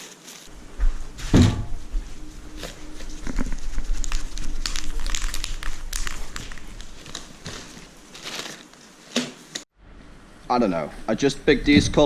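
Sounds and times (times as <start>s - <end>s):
crinkling rustles: 0.0s - 9.6s.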